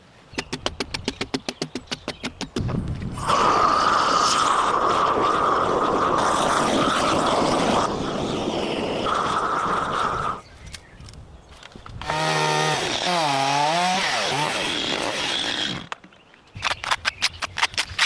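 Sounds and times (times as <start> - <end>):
chainsaw cutting wood: 12.0 - 15.9.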